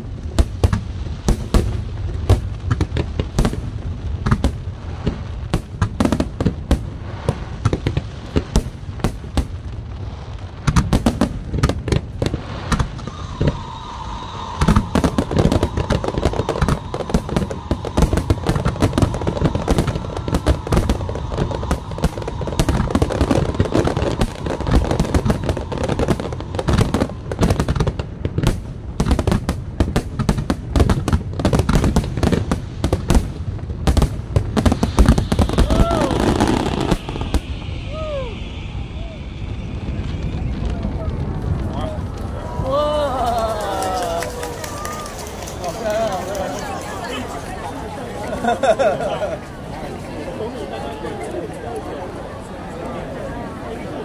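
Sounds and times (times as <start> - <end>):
fireworks bursting and crackling: 0.0 - 54.0
steady high tone: 13.0 - 27.7, 34.7 - 42.4.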